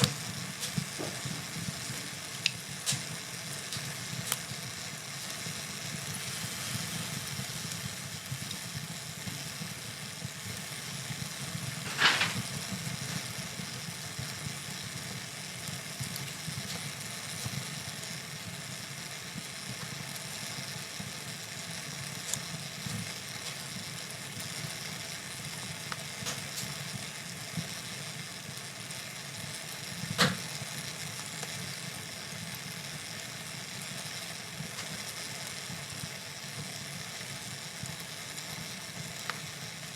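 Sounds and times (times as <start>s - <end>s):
loud fire pops: 0.0s - 9.6s, 10.2s - 14.7s, 25.8s - 26.9s, 29.9s - 31.7s
fire crackling: 0.0s - 39.9s
low rumble of flames: 0.0s - 39.9s.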